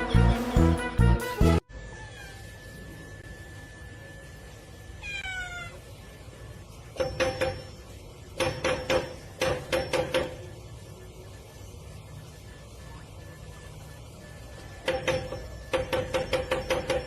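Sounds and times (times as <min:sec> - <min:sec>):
cat meowing: 0:01.8 - 0:02.6, 0:05.0 - 0:05.8
sharp ringing knocks: 0:07.0 - 0:10.5, 0:14.8 - 0:17.0.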